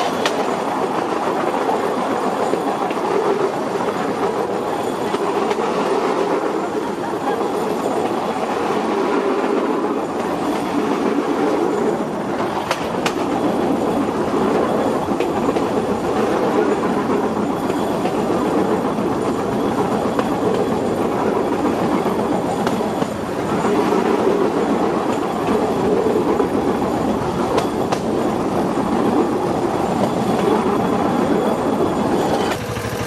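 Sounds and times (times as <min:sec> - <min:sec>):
train rumbling on rails: 0:00.0 - 0:33.0.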